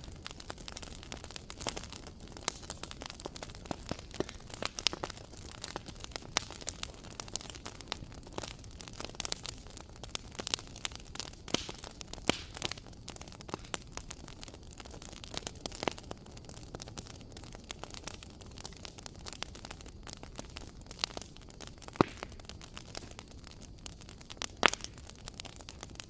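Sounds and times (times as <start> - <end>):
soft steady hiss: 0.0 - 26.0
wood fire crackling and popping: 0.0 - 26.0.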